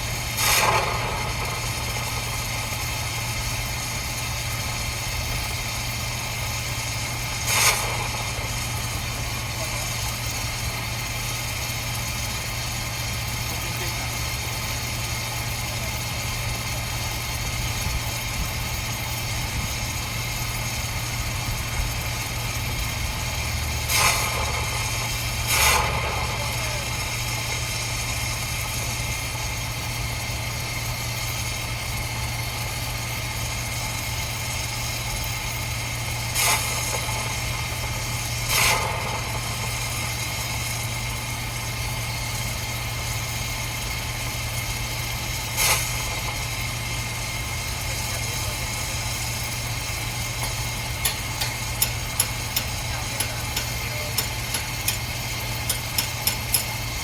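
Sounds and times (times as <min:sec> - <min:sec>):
machinery humming: 0:00.0 - 0:57.0
short hissing bursts: 0:45.5 - 0:46.5.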